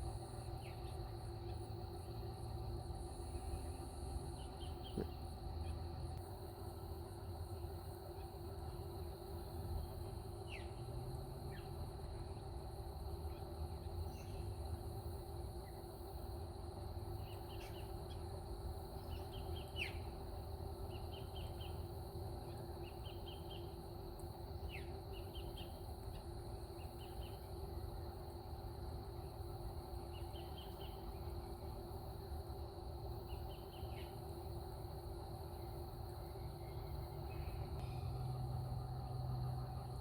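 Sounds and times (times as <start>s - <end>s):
steady background hum: 0.0s - 40.0s
wild birds chirping: 3.1s - 5.9s, 35.5s - 40.0s.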